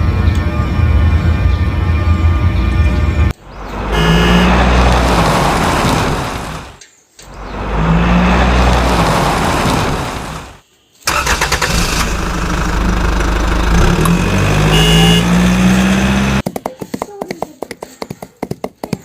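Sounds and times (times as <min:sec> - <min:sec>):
vehicle engine running: 0:11.1 - 0:16.4.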